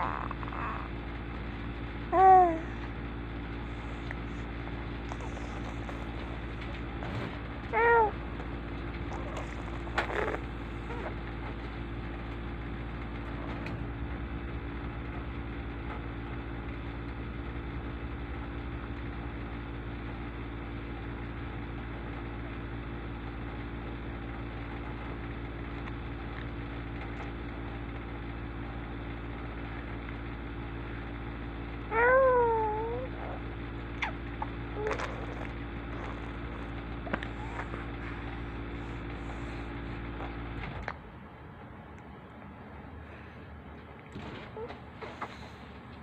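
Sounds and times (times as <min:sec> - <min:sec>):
low mechanical hum: 0:00.0 - 0:46.0.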